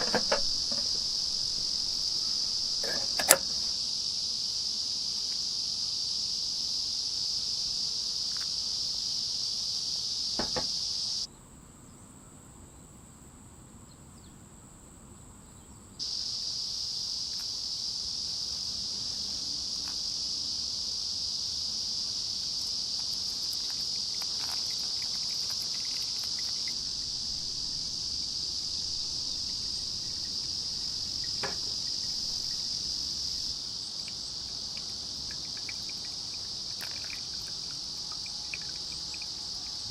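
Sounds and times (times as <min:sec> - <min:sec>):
insects chorus: 0:00.0 - 0:39.9
faint clicks: 0:22.6 - 0:27.2, 0:29.5 - 0:39.9.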